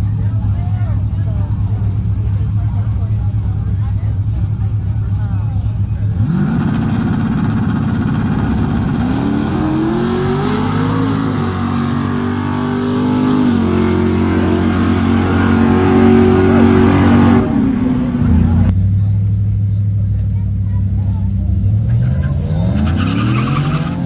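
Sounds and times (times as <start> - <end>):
car engine accelerating hard: 0.0 - 24.0.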